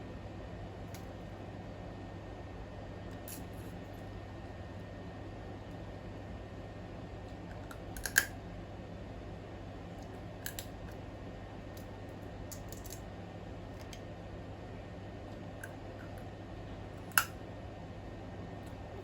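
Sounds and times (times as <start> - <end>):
steady low hum: 0.0 - 19.0
crab shell cracking: 8.0 - 8.3, 12.5 - 13.0.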